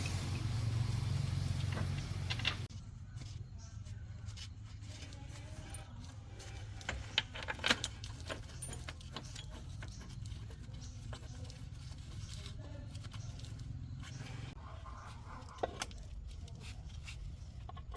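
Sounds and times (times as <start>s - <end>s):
metal tools clinking: 5.3s - 14.1s.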